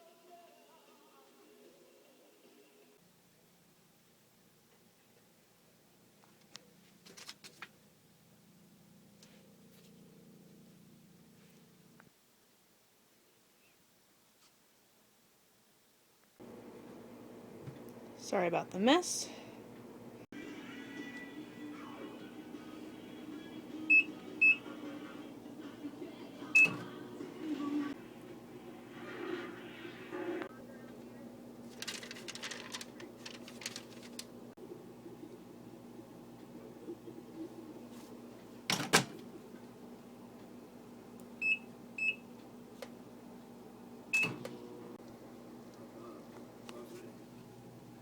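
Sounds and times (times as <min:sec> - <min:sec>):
microwave oven humming: 0:16.4 - 0:48.0
microwave keypad beeps: 0:23.9 - 0:24.7, 0:26.5 - 0:26.9, 0:41.4 - 0:42.3, 0:44.1 - 0:44.5.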